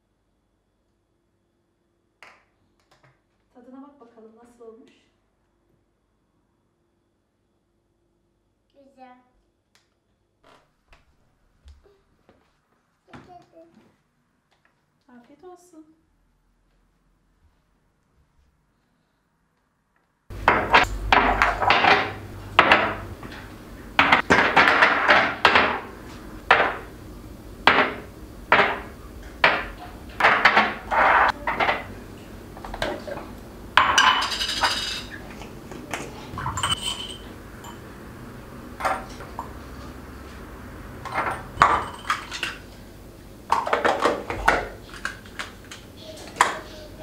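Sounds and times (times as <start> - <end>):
dishes and utensils clattering: 20.3 - 27.0, 27.6 - 38.0, 38.8 - 40.2, 41.0 - 42.8, 43.5 - 46.9.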